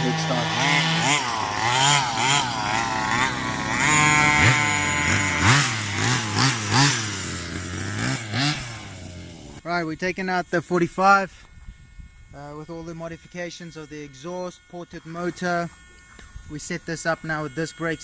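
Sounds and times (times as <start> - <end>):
two-stroke engine revving: 0.0 - 9.7, 12.1 - 18.0.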